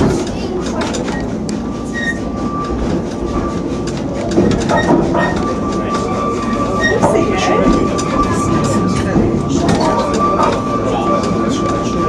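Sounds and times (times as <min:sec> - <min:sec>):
train carriages rumbling and rattling: 0:00.0 - 0:12.0
high wheel squeal: 0:01.8 - 0:03.6, 0:04.6 - 0:12.0.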